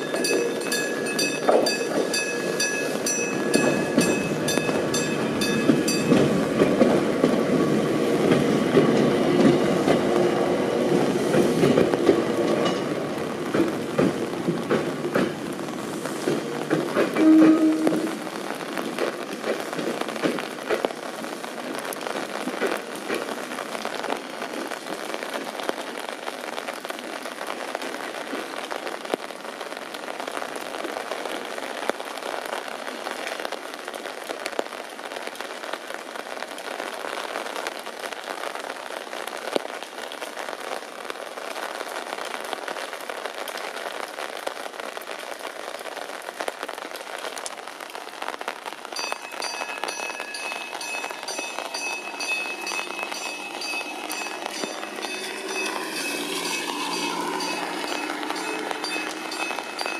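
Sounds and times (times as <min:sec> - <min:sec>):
rain drops ticking on umbrella: 0:10.9 - 0:59.9.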